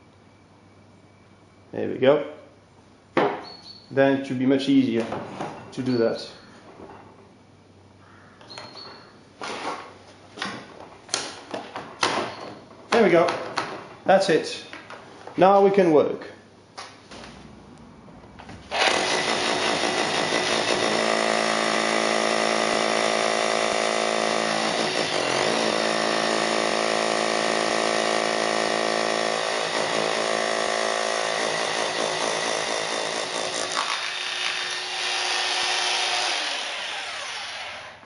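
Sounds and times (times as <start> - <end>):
rotary hammer drilling into stone: 18.7 - 38.0.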